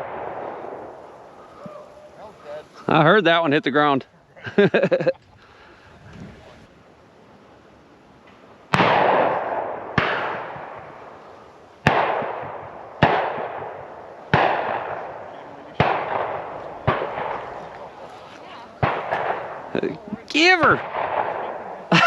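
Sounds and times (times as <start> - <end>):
shotgun shots echoing: 0.0 - 1.8, 8.7 - 11.2, 11.8 - 18.1, 18.8 - 21.9.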